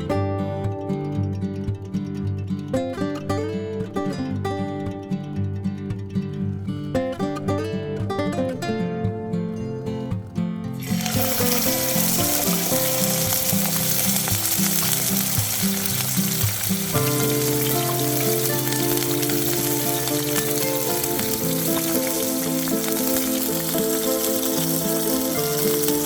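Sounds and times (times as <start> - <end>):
background music: 0.0 - 26.0
meat sizzling: 10.8 - 26.0.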